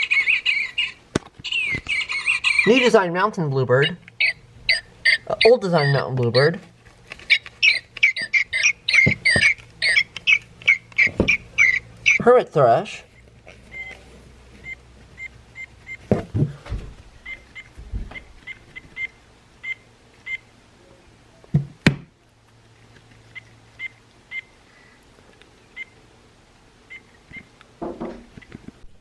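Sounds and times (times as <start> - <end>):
recorded bird call from toy speaker: 0.0 - 3.2, 3.8 - 6.5, 7.2 - 12.2
handling knocks: 9.0 - 9.6, 11.0 - 11.5.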